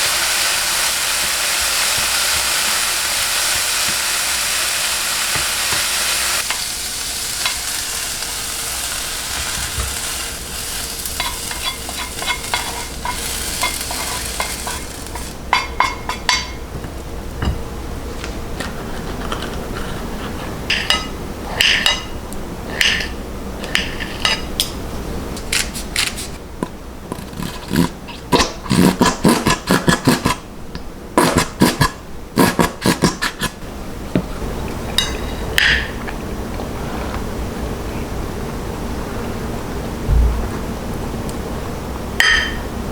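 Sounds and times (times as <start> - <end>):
steady hiss: 0.0 - 18.5
dishes clinking and scraping: 11.2 - 17.6, 18.2 - 24.8, 34.2 - 36.2, 42.2 - 42.7
quick knocks: 40.1 - 40.7.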